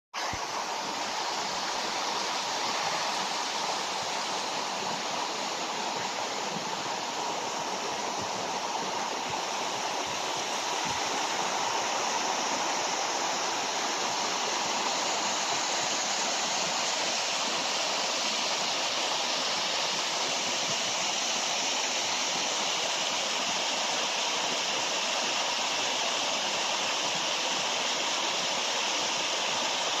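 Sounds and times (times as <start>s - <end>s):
waterfall roaring: 0.2s - 30.0s.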